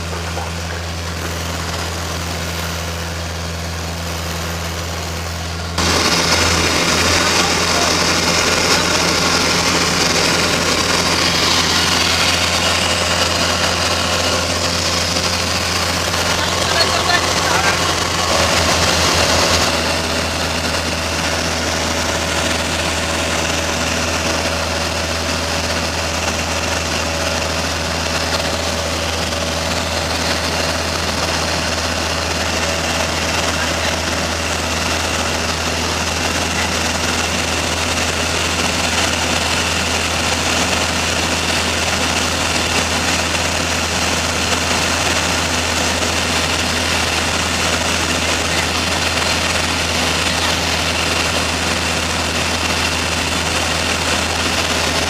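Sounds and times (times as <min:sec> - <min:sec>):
small plane engine drone: 0:00.0 - 0:55.0.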